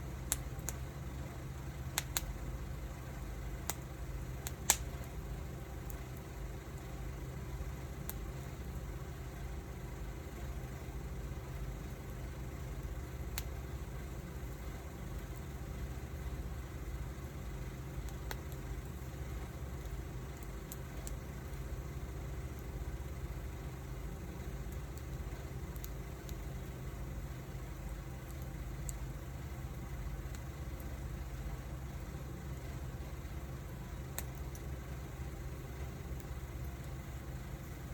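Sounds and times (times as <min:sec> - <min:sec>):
wood snapping crackles: 0:00.0 - 0:08.9, 0:11.2 - 0:37.9
wood fire burning: 0:00.0 - 0:37.9.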